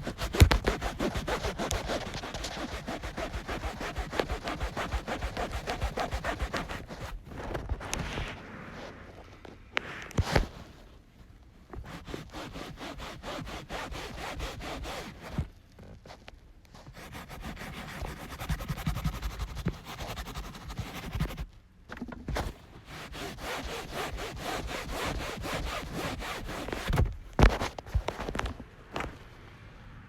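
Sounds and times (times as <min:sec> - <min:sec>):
scrubbing upholstery: 0:00.0 - 0:07.9, 0:11.8 - 0:15.5, 0:16.8 - 0:21.5, 0:22.8 - 0:27.7.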